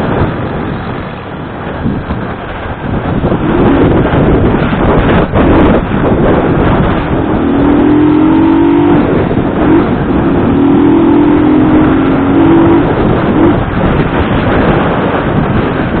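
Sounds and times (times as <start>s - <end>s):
motorcycle engine accelerating: 0.0s - 16.0s
wind rush on microphone: 0.0s - 16.0s.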